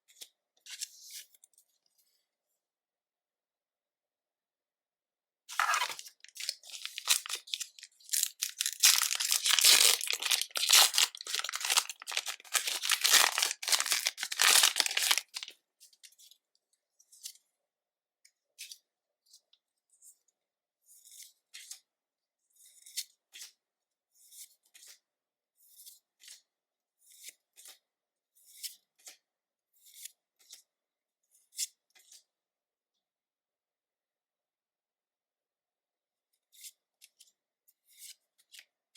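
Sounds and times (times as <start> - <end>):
foil wrapper crinkling and tearing: 5.5 - 15.5.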